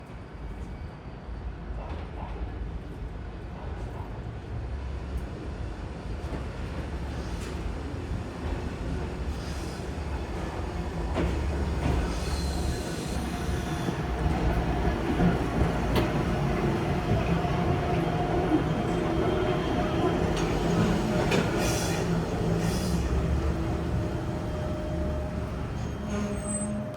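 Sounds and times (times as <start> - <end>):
train running on rails: 0.0 - 26.9
high-pitched wheel squeal: 24.5 - 26.9.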